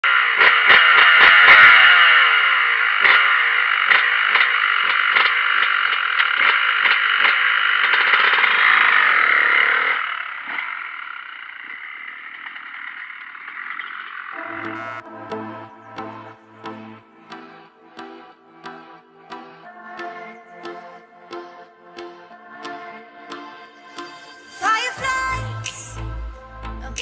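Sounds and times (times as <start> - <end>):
motocross bike engine revving: 0.1 - 15.1.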